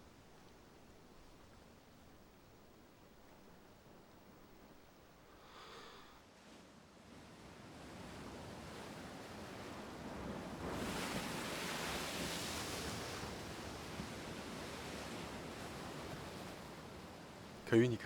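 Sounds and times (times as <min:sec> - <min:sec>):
sea waves washing ashore: 0:09.6 - 0:18.0.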